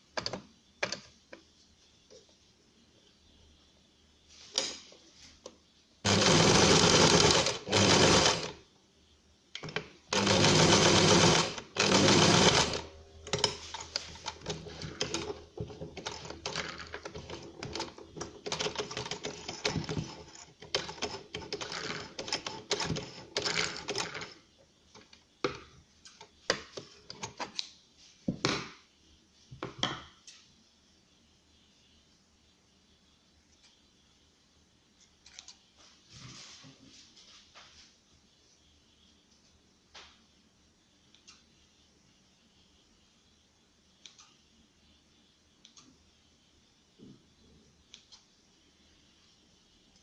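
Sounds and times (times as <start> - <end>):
sewing machine stitching: 6.0 - 8.6, 9.7 - 24.4.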